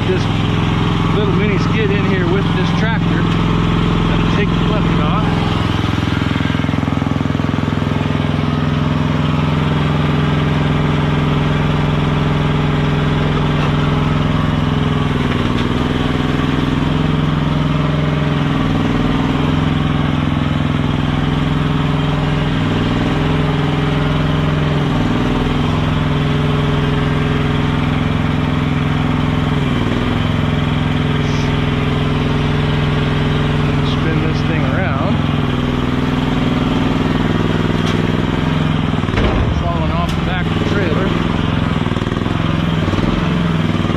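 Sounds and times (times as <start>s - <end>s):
tractor diesel engine idling: 0.0s - 43.9s.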